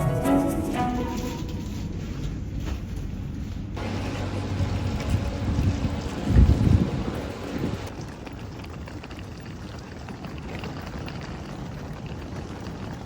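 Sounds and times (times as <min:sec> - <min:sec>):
wind buffeting microphone: 0:03.8 - 0:13.0.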